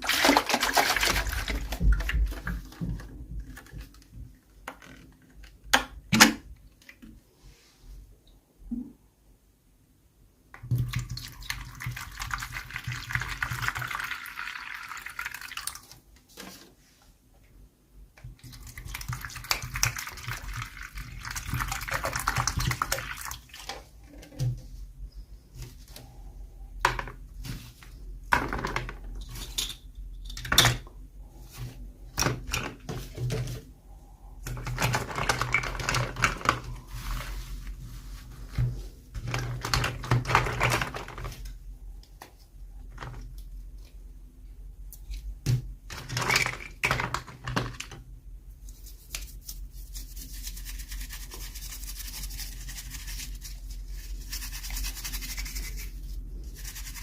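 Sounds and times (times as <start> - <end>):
plastic packaging clicks and rustling: 34.4 - 36.8, 39.2 - 41.5.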